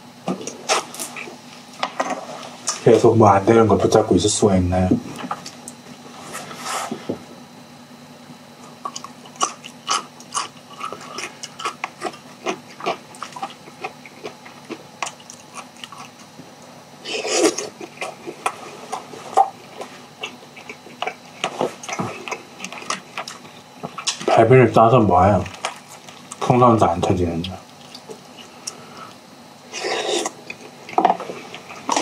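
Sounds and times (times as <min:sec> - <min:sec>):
chewing with wet mouth clicks: 0:08.7 - 0:16.3, 0:17.2 - 0:24.4, 0:25.4 - 0:26.4, 0:27.4 - 0:29.2.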